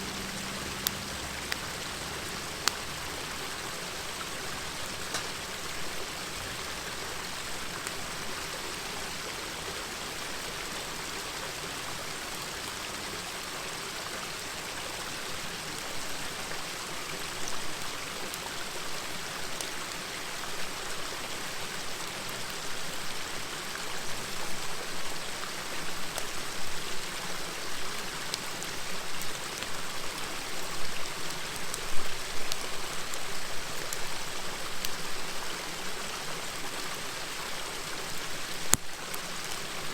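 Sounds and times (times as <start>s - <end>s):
campfire crackling and popping: 0.0s - 6.6s, 25.8s - 35.9s, 37.9s - 39.9s
river murmuring: 0.0s - 39.9s.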